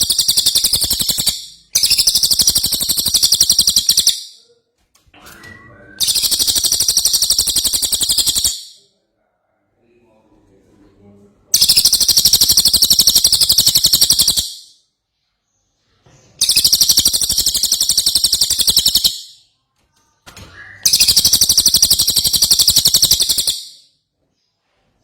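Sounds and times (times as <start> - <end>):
songbird trilling: 0.0 - 4.3, 6.0 - 8.8, 11.6 - 14.7, 16.4 - 19.3, 20.8 - 23.8.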